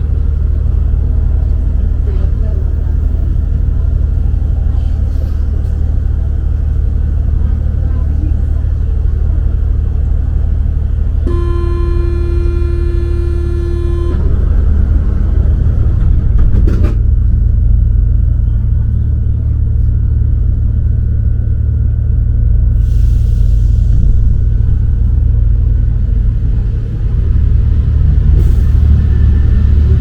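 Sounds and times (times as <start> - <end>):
train low rumble: 0.0 - 30.0
electronic warning tone: 11.3 - 14.4
clicks and knocks: 16.4 - 17.0.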